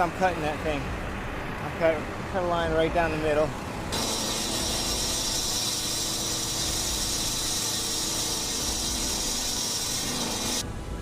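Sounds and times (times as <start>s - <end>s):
power saw cutting concrete: 3.9s - 10.6s.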